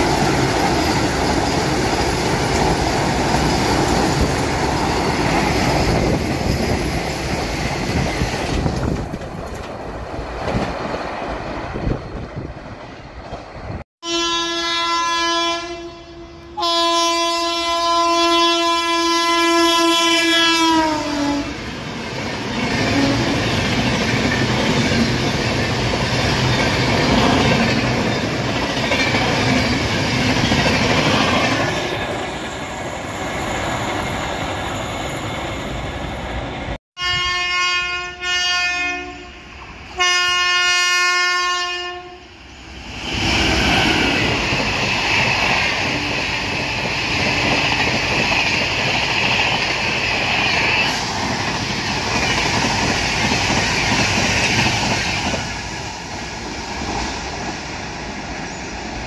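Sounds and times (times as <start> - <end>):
train rumble and clickety-clack: 0.0 - 13.8, 16.4 - 37.2, 42.8 - 59.0
train horn blasts: 14.0 - 21.6, 37.0 - 42.3.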